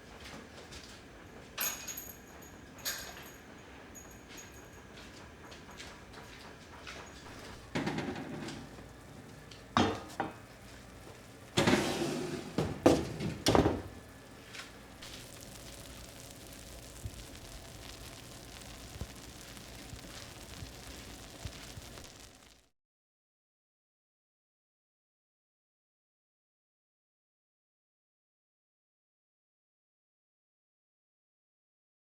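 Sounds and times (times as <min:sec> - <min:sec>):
kitchenware knocking and clinking: 0:07.3 - 0:08.9, 0:09.7 - 0:10.5, 0:11.6 - 0:14.0.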